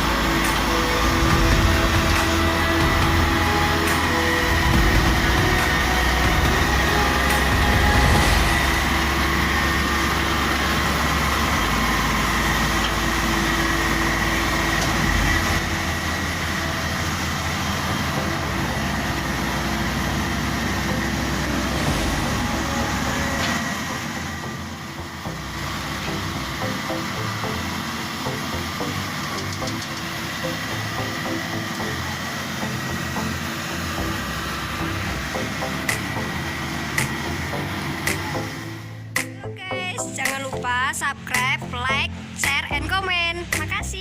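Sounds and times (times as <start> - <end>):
combine harvester engine rumble: 0.0 - 44.0
high whine: 0.0 - 44.0.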